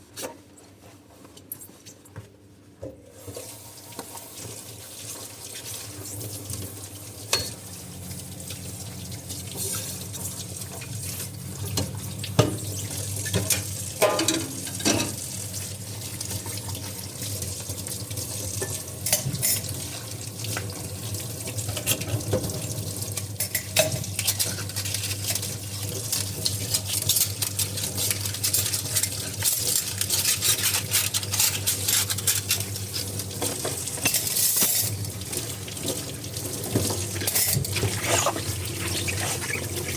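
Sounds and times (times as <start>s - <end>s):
dishes knocking and clinking: 13.3s - 15.2s.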